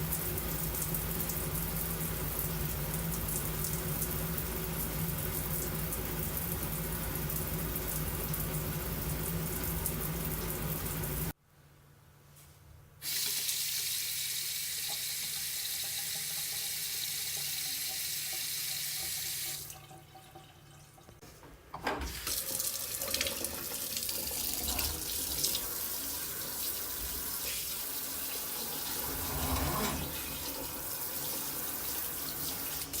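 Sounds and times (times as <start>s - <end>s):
tap water running into sink: 13.1s - 21.2s, 21.9s - 33.0s.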